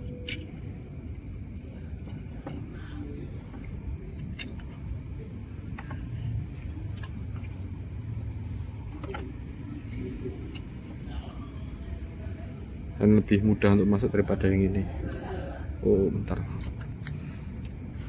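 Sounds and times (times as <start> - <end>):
low steady rumble: 0.0 - 14.1
cricket trilling: 0.0 - 18.0
light clicks of small parts: 0.2 - 0.6.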